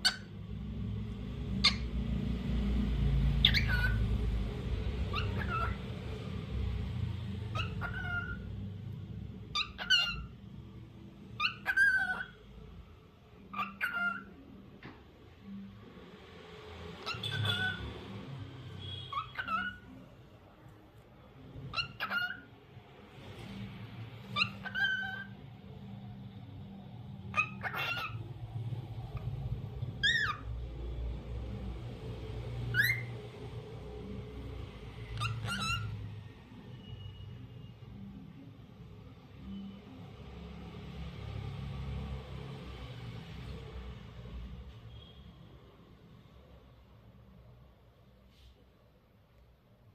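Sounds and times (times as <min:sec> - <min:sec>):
cockatiel whistling: 0:03.4 - 0:04.0, 0:05.1 - 0:05.8, 0:07.5 - 0:08.4, 0:11.4 - 0:12.4, 0:17.0 - 0:17.8, 0:18.8 - 0:19.8, 0:24.3 - 0:25.3, 0:27.3 - 0:28.2, 0:30.0 - 0:30.5, 0:32.7 - 0:33.1, 0:35.2 - 0:36.0.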